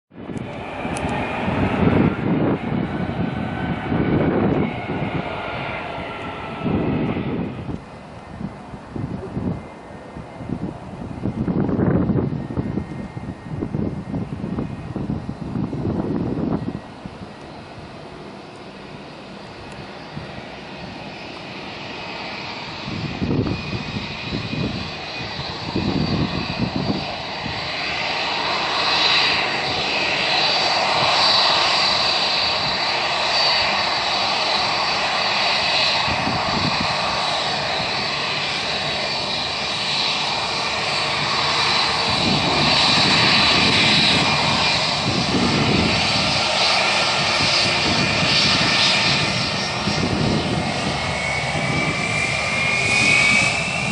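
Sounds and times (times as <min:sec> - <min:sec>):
high engine whine: 0:00.1 - 0:53.9
jet engines roaring: 0:00.1 - 0:53.9.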